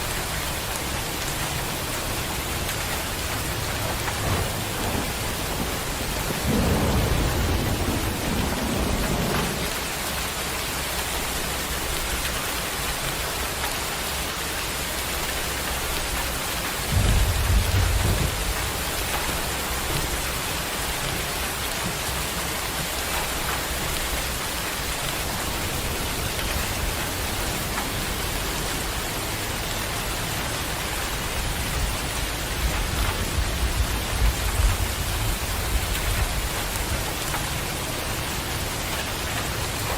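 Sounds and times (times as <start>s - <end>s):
steady rain: 0.0s - 39.9s
thunder rumbling: 1.5s - 10.3s, 16.8s - 39.9s.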